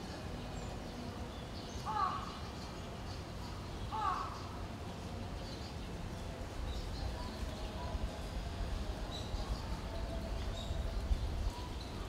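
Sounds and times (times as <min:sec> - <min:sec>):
small birds chirping: 0:00.0 - 0:12.0
wind rumble on microphone: 0:05.2 - 0:12.0.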